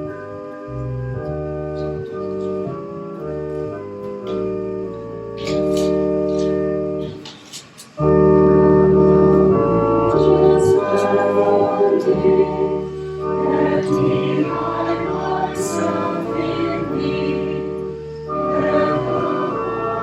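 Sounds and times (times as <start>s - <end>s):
church organ playing chords: 0.0s - 7.4s, 8.0s - 20.0s
voices singing: 10.0s - 20.0s.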